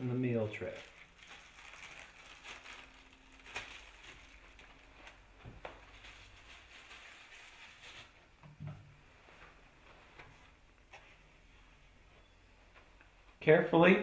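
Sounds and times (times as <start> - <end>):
plastic film crinkling: 0.2 - 8.2.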